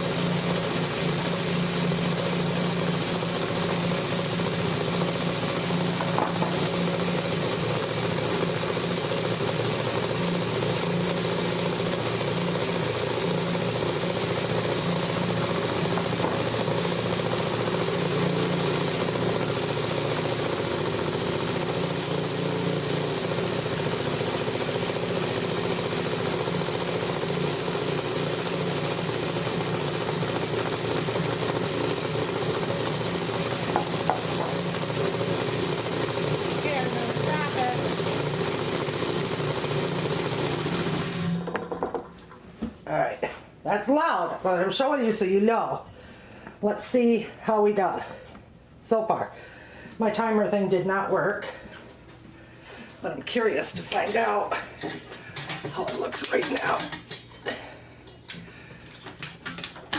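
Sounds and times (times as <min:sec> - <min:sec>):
vibrating sieve shaker humming: 0:00.0 - 0:41.4.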